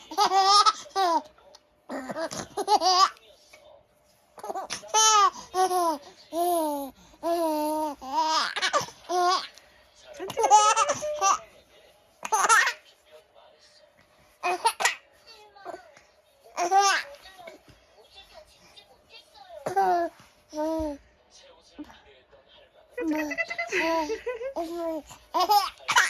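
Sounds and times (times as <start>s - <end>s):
baby laughing: 0.0s - 1.3s, 1.9s - 3.2s, 4.4s - 9.5s, 10.3s - 11.4s, 12.2s - 12.8s, 16.6s - 17.2s, 23.0s - 26.0s.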